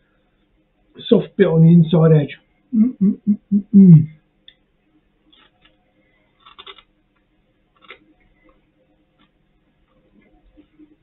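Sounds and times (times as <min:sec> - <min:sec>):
faint crunching of chewing: 0:05.2 - 0:11.0.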